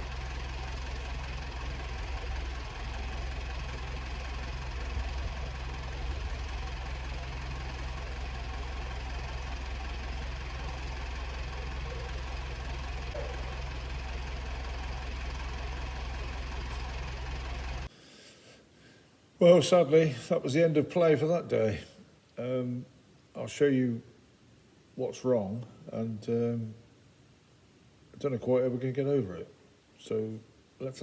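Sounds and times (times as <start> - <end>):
diesel engine running steadily: 0.0 - 17.9.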